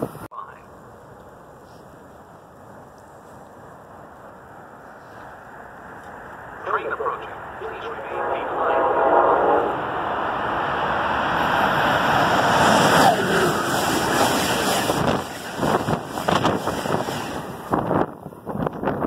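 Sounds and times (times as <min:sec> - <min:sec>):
train rushing roar: 0:03.6 - 0:18.8
train cars clicking: 0:12.5 - 0:18.9.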